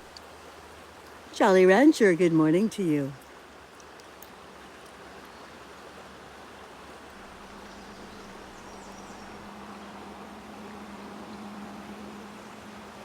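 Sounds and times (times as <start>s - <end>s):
low steady hum: 0.0s - 3.4s, 5.3s - 13.0s
river water rushing: 0.0s - 13.0s.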